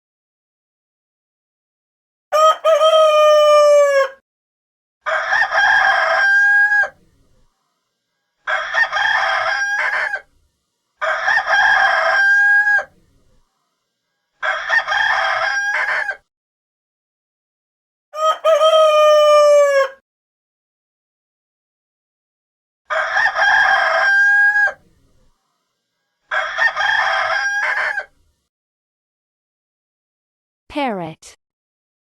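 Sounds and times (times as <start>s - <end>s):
rooster crowing: 2.3s - 4.2s, 5.0s - 7.0s, 8.4s - 10.3s, 11.0s - 13.0s, 14.4s - 16.2s, 18.2s - 20.0s, 22.9s - 24.8s, 26.3s - 28.2s.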